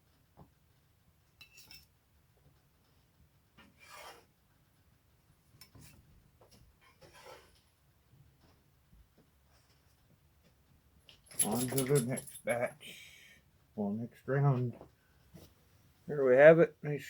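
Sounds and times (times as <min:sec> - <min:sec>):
metal spatula scraping frying pan: 0:03.8 - 0:04.3, 0:06.9 - 0:07.6.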